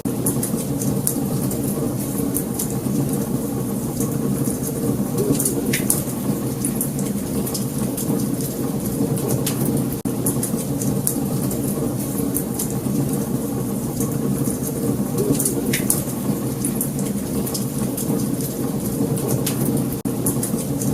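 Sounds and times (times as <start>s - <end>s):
wood fire crackling and popping: 0.0s - 20.9s.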